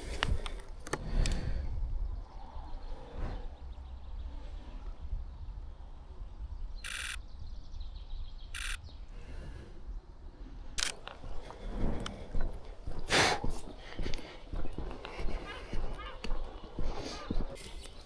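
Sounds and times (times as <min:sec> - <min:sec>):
wind rumble on microphone: 0:00.0 - 0:18.0
rapid camera shutter clicks: 0:06.8 - 0:07.2, 0:08.6 - 0:08.8, 0:10.8 - 0:12.1
handling rustling: 0:10.8 - 0:18.0.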